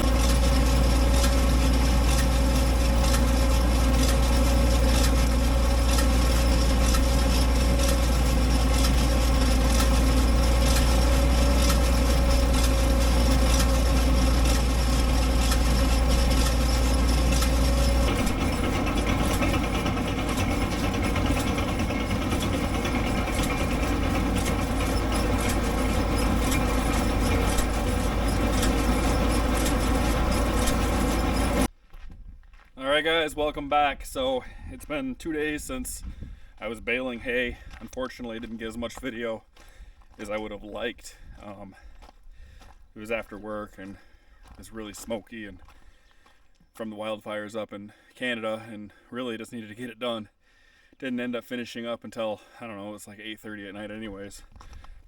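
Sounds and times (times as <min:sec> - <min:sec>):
tractor engine running: 0:00.0 - 0:32.0, 0:32.8 - 0:46.4
deep low hum: 0:00.0 - 0:32.7.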